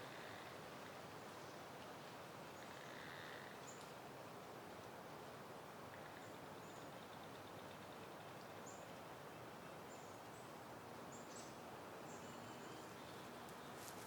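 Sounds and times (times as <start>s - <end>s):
faint wind through foliage: 0.0s - 14.0s.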